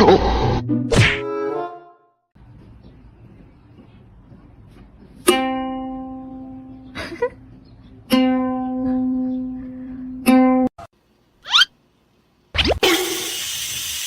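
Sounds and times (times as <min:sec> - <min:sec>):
plucked string notes: 0:05.2 - 0:06.8, 0:08.1 - 0:09.6.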